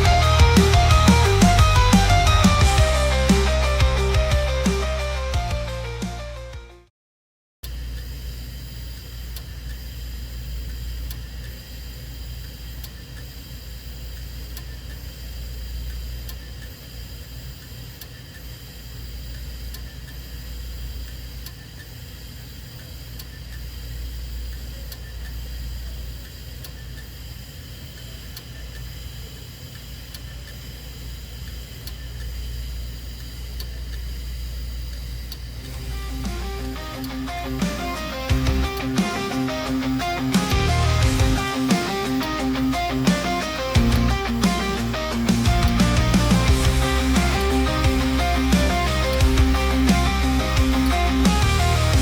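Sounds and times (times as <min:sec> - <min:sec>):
low machine hum: 0:30.7 - 0:52.0.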